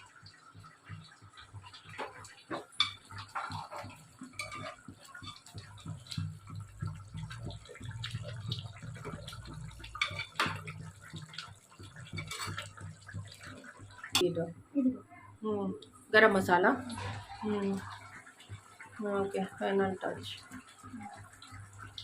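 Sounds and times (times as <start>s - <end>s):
curry bubbling in a pot: 0.0s - 22.0s
spoon knocking against pot: 2.0s - 12.8s.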